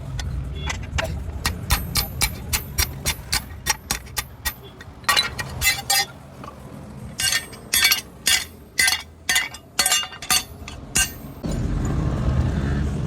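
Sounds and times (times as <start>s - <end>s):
hammer striking metal on anvil: 0.2s - 6.6s, 7.2s - 11.5s.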